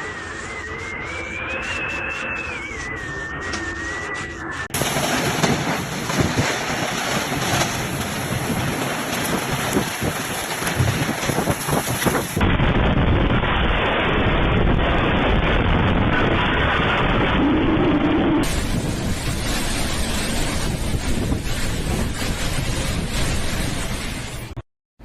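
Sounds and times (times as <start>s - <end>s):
muffled storm noise: 0.0s - 24.6s
wind buffeting microphone: 4.7s - 24.3s.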